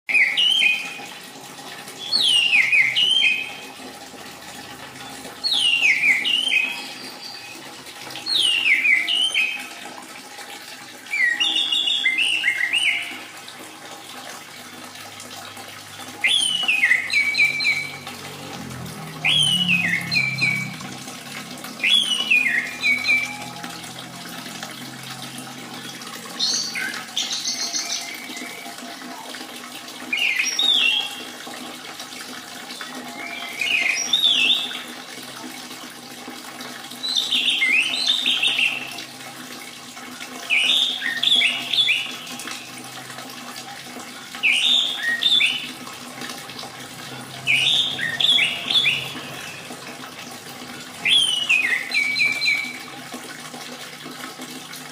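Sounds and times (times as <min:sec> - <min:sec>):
thrush singing whistled phrases: 0:00.1 - 0:01.0, 0:02.0 - 0:03.6, 0:05.4 - 0:07.6, 0:08.2 - 0:09.8, 0:11.1 - 0:13.3, 0:16.2 - 0:18.0, 0:19.2 - 0:20.8, 0:21.8 - 0:23.6, 0:26.4 - 0:28.8, 0:30.1 - 0:31.2, 0:33.1 - 0:34.8, 0:37.0 - 0:38.9, 0:40.4 - 0:42.7, 0:44.4 - 0:45.8, 0:47.4 - 0:49.6, 0:51.0 - 0:52.9
trickle of running water: 0:00.1 - 0:54.9.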